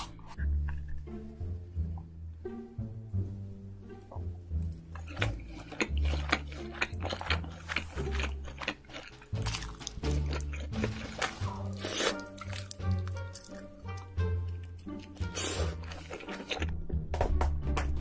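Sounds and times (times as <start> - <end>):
crab shell cracking and chewing: 4.9 - 16.8.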